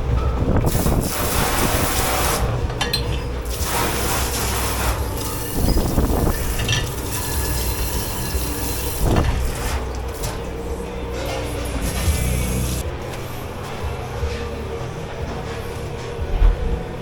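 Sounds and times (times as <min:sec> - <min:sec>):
kitchen machinery hum: 0:00.0 - 0:17.0
water running and spraying: 0:00.7 - 0:02.5, 0:03.4 - 0:09.7, 0:11.8 - 0:12.8
dishes and racks clattering: 0:02.6 - 0:12.9.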